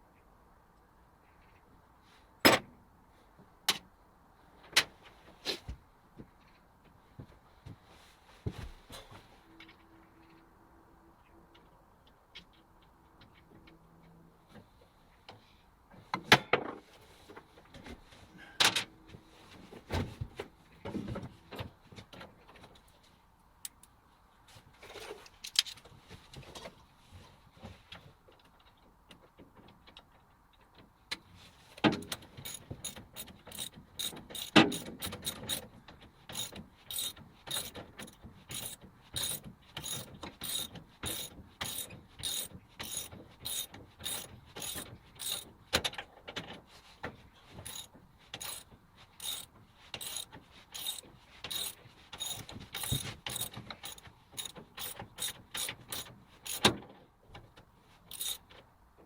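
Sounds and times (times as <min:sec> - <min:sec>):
sharp mechanical clicks: 0:32.4 - 0:35.7, 0:36.3 - 0:45.5, 0:47.6 - 0:48.6, 0:49.2 - 0:56.7, 0:58.1 - 0:58.4.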